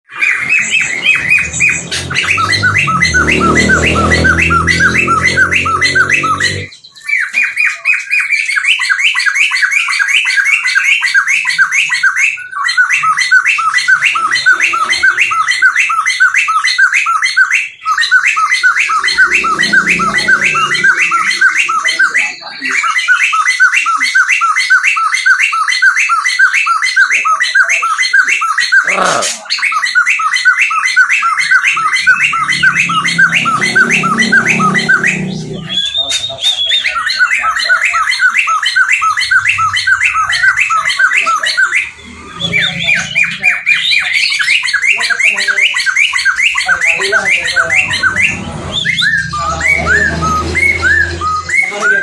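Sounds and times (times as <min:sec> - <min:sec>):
songbird singing repeated notes: 0:00.0 - 0:52.0.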